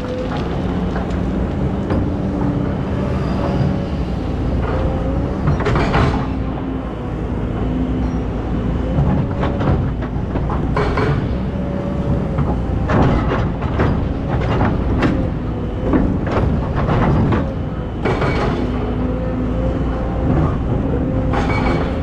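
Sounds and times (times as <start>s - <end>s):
excavator engine rumbling: 0.0s - 22.0s
clatter: 15.9s - 18.8s.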